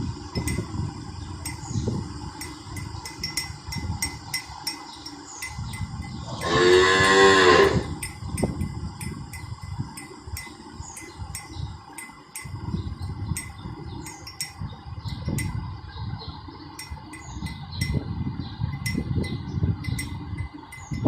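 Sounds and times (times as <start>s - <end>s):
cattle bells jingling: 1.4s - 15.6s, 18.7s - 21.0s.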